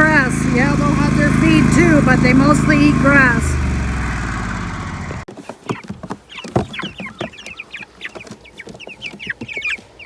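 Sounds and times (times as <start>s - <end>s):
chicks cheeping: 5.6s - 10.0s.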